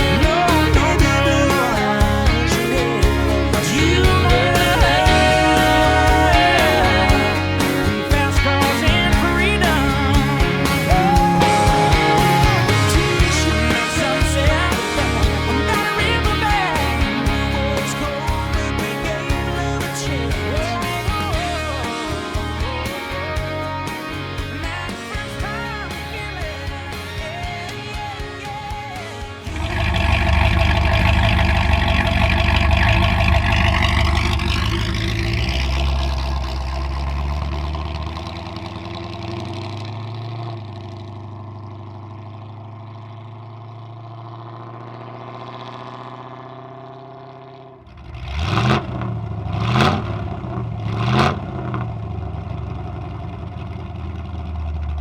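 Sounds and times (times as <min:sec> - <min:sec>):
car engine running: 0:00.0 - 0:55.0
engine throttle blips: 0:28.4 - 0:55.0.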